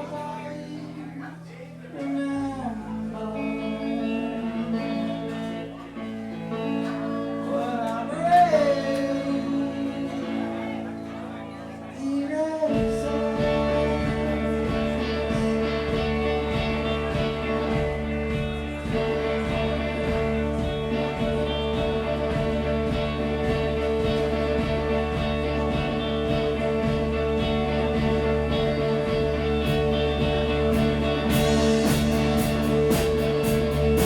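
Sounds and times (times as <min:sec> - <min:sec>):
bass: 0:00.0 - 0:34.0
electric guitars: 0:00.0 - 0:34.0
drums: 0:12.6 - 0:34.0.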